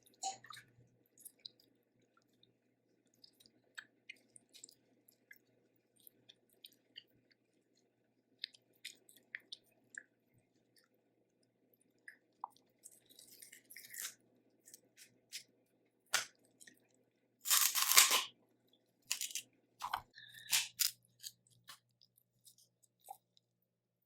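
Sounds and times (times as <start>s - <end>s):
close-up chewing: 0.3s - 11.0s, 11.8s - 15.5s
shell clicks and crunches: 17.5s - 18.3s, 19.1s - 21.4s.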